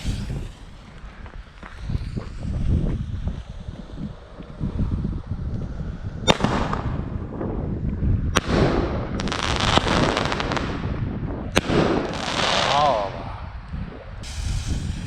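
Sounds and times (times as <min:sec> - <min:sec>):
firework bangs: 0:00.0 - 0:02.0, 0:14.2 - 0:15.0
fireworks crackling: 0:00.0 - 0:04.4, 0:14.2 - 0:15.0
wind on microphone: 0:00.0 - 0:15.0.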